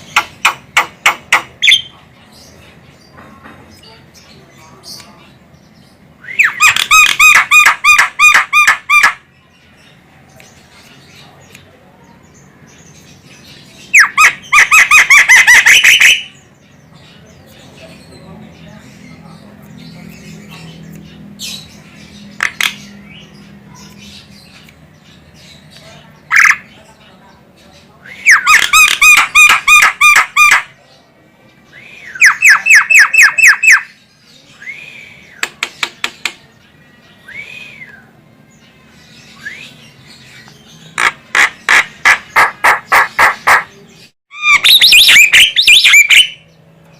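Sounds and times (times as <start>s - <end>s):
sharp clicks: 35.4s - 36.5s
myna calling: 40.9s - 46.4s.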